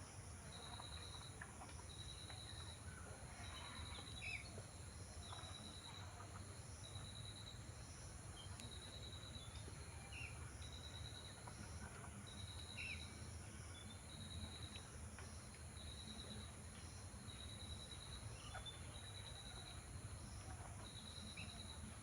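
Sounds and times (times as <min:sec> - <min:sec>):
insect pulsed trills: 0:05.0 - 0:22.0.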